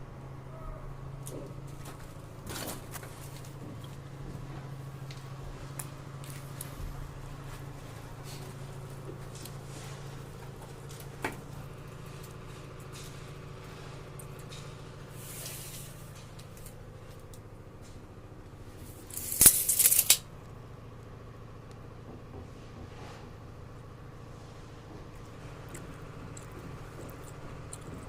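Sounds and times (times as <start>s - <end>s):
steady low hum: 0.0s - 28.0s
burst of rattling clicks: 19.1s - 20.2s.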